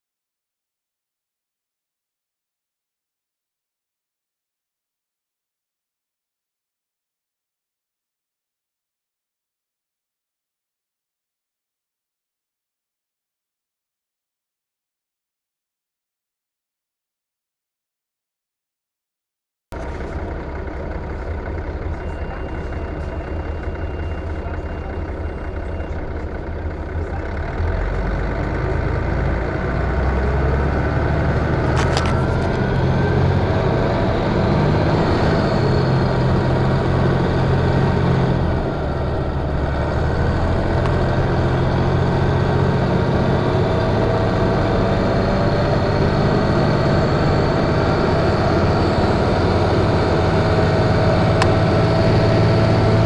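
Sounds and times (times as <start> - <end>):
bus engine running: 19.8 - 53.0
rising whine: 27.7 - 53.0.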